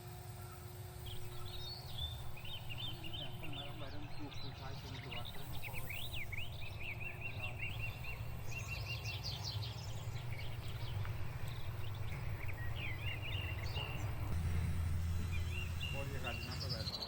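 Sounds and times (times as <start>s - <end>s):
small birds chirping: 0.3s - 17.0s
low rumble: 9.9s - 16.9s.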